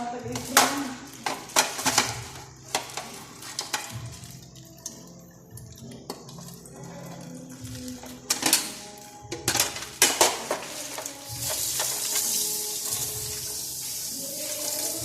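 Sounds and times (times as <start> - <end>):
dishes and cutlery clattering: 0.3 - 5.0, 5.6 - 12.4.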